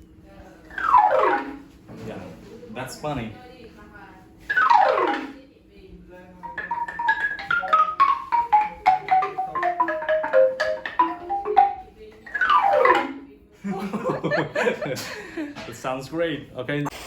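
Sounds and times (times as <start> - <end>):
xylophone notes and glissando: 4.5 - 5.4, 6.5 - 13.3.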